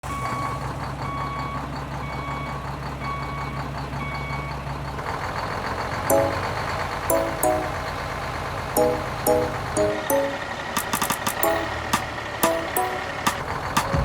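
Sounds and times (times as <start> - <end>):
truck reversing alarm beeping: 0.0 - 14.0
low engine hum: 5.0 - 10.8, 11.4 - 14.0.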